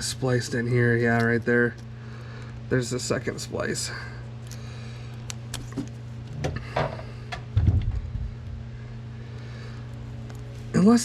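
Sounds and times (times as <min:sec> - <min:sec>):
steady low hum: 0:00.0 - 0:11.0
wires clicking and rustling: 0:00.4 - 0:03.4, 0:04.4 - 0:08.6.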